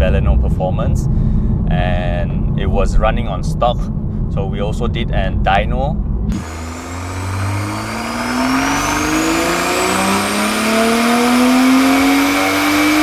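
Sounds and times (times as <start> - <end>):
car engine revving at full throttle: 6.3 - 13.0
faint high whine: 6.3 - 13.0.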